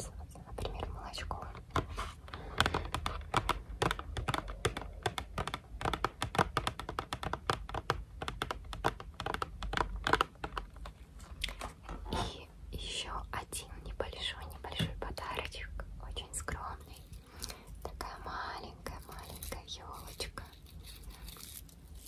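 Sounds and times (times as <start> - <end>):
finger clicks and taps: 2.6 - 10.7.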